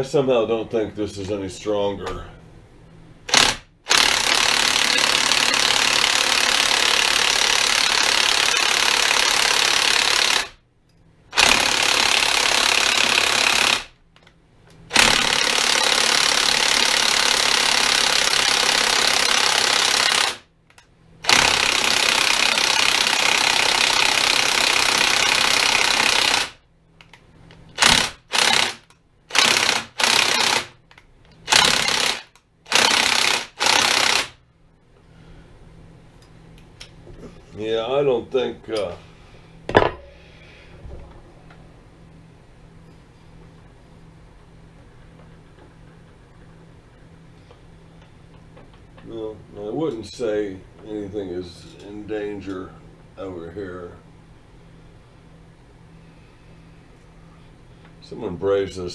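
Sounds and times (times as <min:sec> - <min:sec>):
electric impact wrench hammering: 0:03.3 - 0:10.6, 0:11.3 - 0:14.3, 0:14.9 - 0:26.6, 0:27.7 - 0:34.4.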